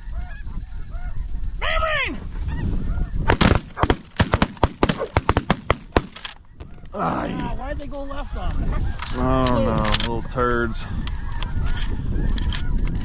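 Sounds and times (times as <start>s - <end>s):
geese honking: 0.0s - 3.2s, 10.4s - 12.8s.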